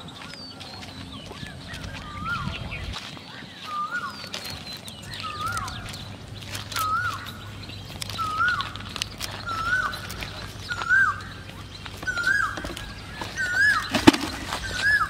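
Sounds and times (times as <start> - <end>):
faint bird chirps: 0.0 - 15.0
bird whistling wavering note: 12.0 - 15.0.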